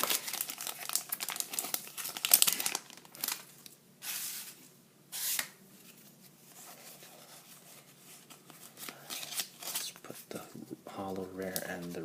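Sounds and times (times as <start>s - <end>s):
foil wrapper crinkling: 0.0s - 3.7s.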